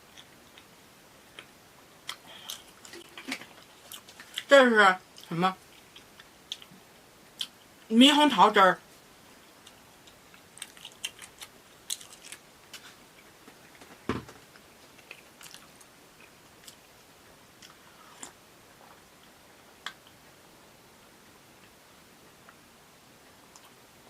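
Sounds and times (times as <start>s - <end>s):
quiet chewing: 1.3s - 4.5s, 9.6s - 13.9s, 14.6s - 17.0s.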